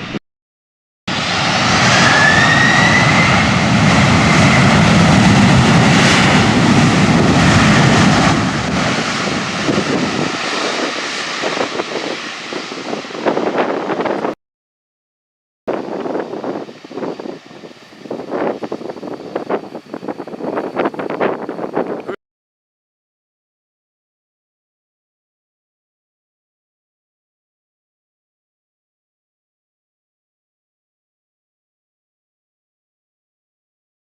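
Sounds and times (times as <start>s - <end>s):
jet airliner engines: 0.0s - 0.2s, 1.1s - 14.4s, 15.7s - 22.2s
rising engine whine: 1.1s - 14.4s.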